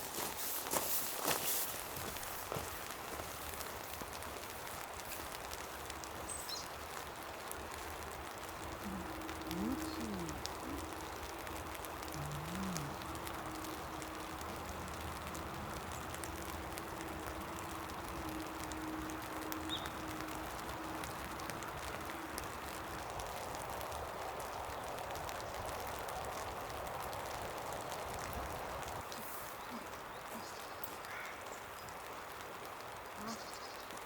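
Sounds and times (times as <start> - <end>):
steady rain with drop taps: 0.0 - 34.0
faint steady hum: 2.0 - 31.3.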